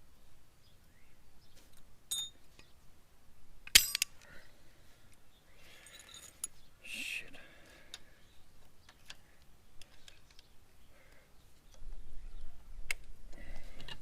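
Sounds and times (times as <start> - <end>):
metal hand tools clinking: 2.1 - 2.4, 3.7 - 4.1, 5.7 - 6.6.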